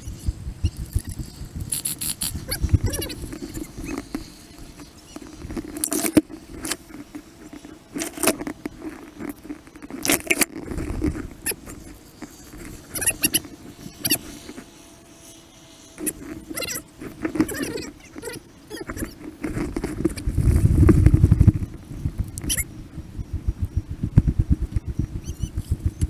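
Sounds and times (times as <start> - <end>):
rustling: 0.0 - 22.6
sped-up voices squeaking: 2.0 - 4.1, 12.8 - 14.3, 16.0 - 19.2, 22.4 - 22.7.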